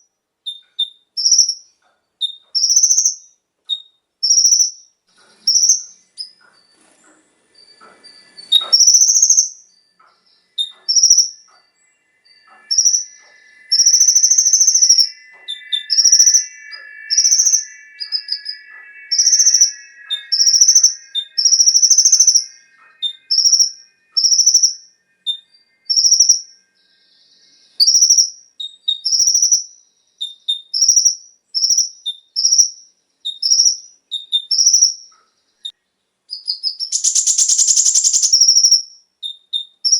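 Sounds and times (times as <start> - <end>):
bird chirping: 0.0 - 39.9
faint steady whine: 5.0 - 28.6.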